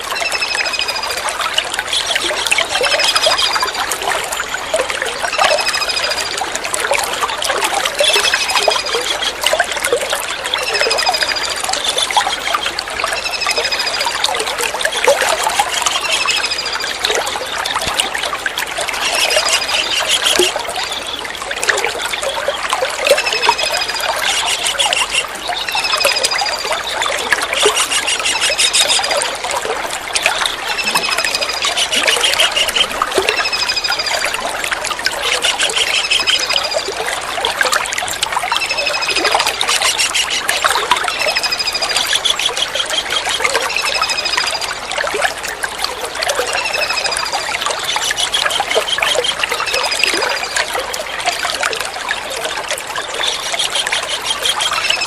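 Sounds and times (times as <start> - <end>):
trickling water: 0.0 - 55.0
kingfisher calls: 18.9 - 20.6, 23.2 - 26.4, 27.4 - 29.4, 30.4 - 34.1, 35.2 - 36.8, 38.7 - 44.4.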